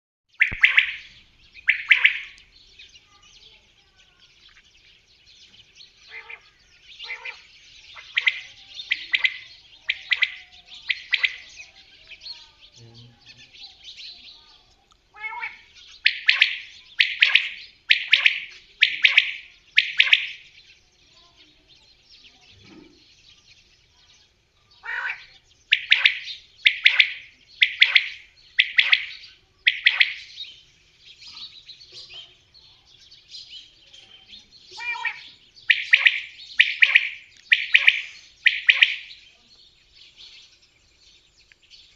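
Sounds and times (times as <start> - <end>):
gamebird harsh calls: 0.4 - 2.4, 6.0 - 11.6, 15.1 - 20.5, 24.8 - 30.4, 34.7 - 39.2.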